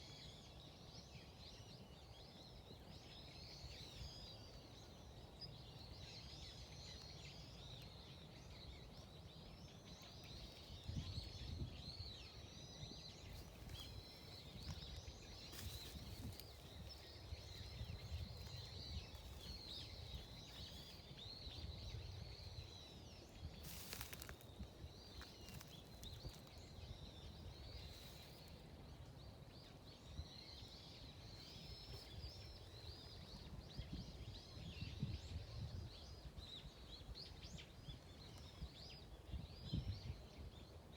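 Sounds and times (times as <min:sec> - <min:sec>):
small birds chirping: 0:00.0 - 0:40.9
low wind rumble: 0:10.6 - 0:40.6
rustling: 0:23.6 - 0:24.5.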